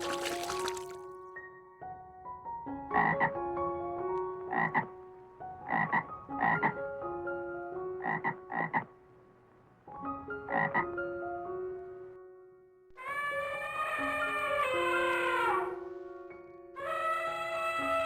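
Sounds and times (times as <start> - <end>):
soft background music: 0.0 - 18.0
frog croaking: 3.0 - 3.3, 4.5 - 4.9, 5.6 - 6.8, 8.0 - 8.9, 10.5 - 10.8.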